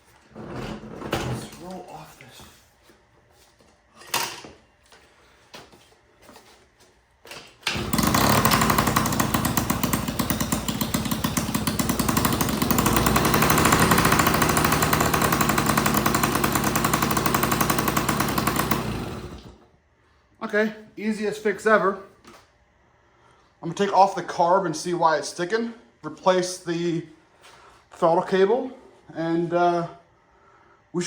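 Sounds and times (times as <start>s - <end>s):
two-stroke engine running at high revs: 7.7s - 19.6s.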